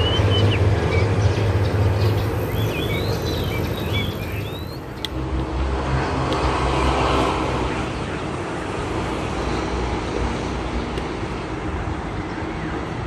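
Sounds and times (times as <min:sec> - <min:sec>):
small birds chirping: 0:00.0 - 0:05.2
low traffic rumble: 0:00.0 - 0:13.0.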